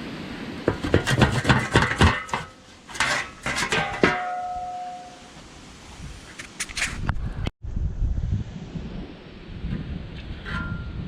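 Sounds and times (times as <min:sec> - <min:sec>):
metallic clanks and knocks: 0:00.7 - 0:05.3.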